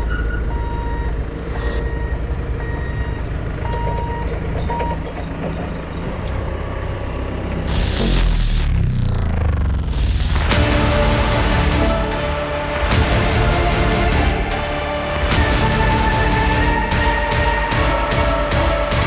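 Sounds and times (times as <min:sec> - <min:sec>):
vehicle reversing alarm beeping: 0:00.2 - 0:05.2.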